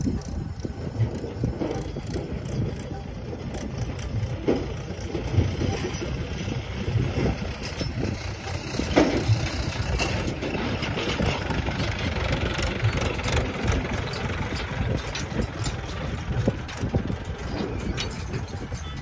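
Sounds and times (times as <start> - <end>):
heavy machine engine running: 0.0 - 19.0.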